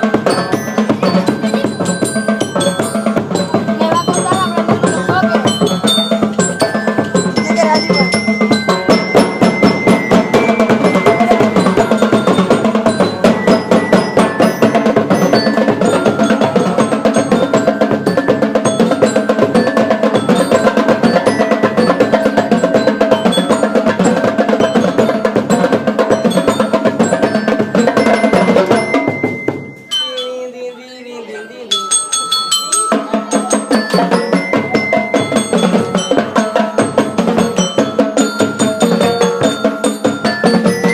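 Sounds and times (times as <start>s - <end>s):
marching band drums: 0.0s - 29.9s, 32.9s - 40.9s
bell lyres playing: 0.0s - 40.9s.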